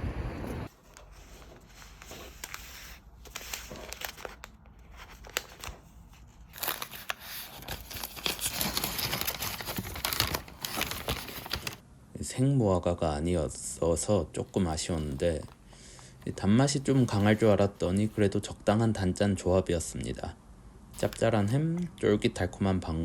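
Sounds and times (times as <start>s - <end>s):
food wrapping crinkling: 0.7s - 11.8s, 21.0s - 21.5s.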